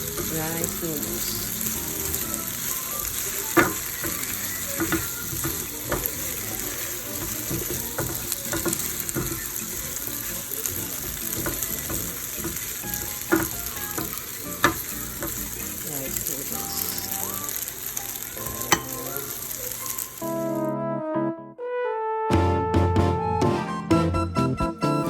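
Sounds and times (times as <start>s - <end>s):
utensil clanking against pan: 0.0s - 17.4s, 18.4s - 19.6s
noodles sizzling in hot oil: 0.0s - 20.6s.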